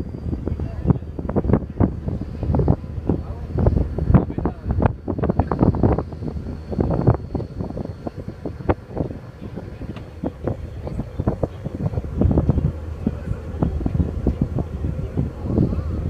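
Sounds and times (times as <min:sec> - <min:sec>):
boat engines rumbling: 0:00.0 - 0:16.0
wind buffeting microphone: 0:00.0 - 0:16.0.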